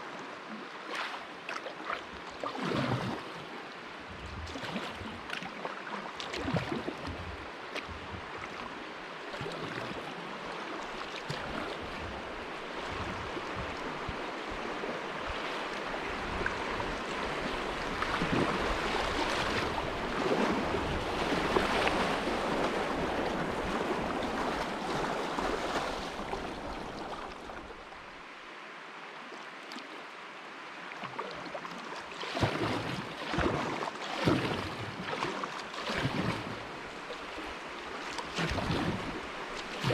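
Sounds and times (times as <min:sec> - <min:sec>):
paddle splashes: 0:00.0 - 0:28.5, 0:29.2 - 0:39.9
river water rushing: 0:00.0 - 0:39.9.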